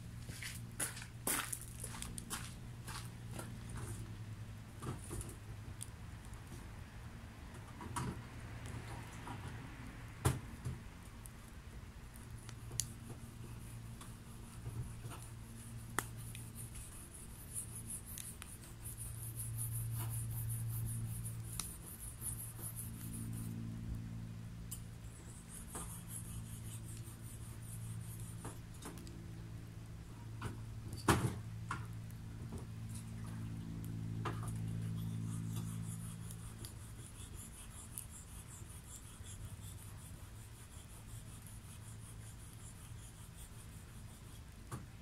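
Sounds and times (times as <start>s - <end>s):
fire crackling and popping: 10.5s - 16.8s.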